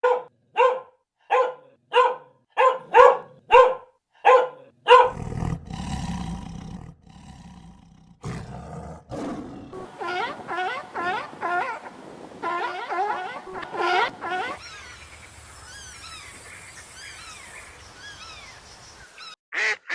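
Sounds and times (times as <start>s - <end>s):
rough animal call with low rumble: 5.1s - 11.8s.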